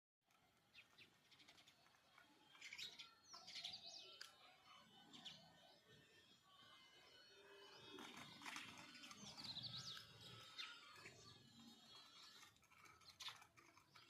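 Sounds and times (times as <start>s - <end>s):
sparrow chirping: 0.6s - 14.0s.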